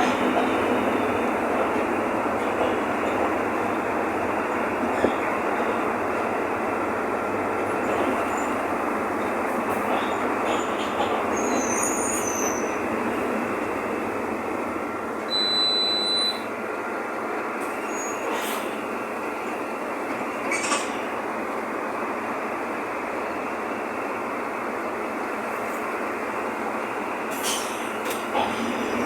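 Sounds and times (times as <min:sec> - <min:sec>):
bus engine and road noise: 0:00.0 - 0:29.0
high steady beep: 0:15.3 - 0:16.4.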